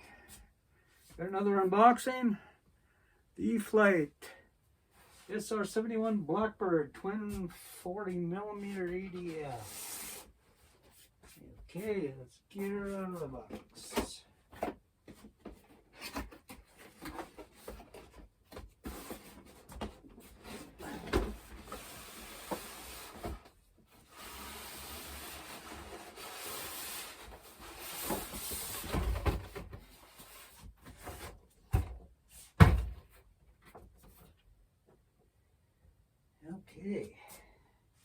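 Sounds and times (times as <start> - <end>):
cardboard and plastic scraping: 13.4 - 32.0.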